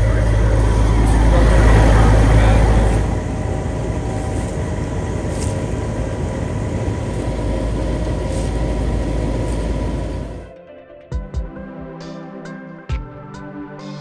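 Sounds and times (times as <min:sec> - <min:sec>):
heat pump humming: 0:00.0 - 0:10.5.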